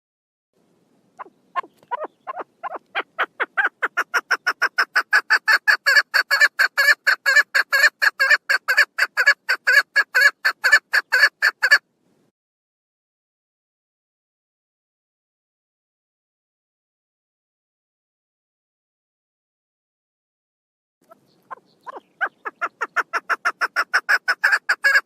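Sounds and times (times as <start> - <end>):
partridge calling harsh notes: 1.2 - 11.8, 21.0 - 25.0.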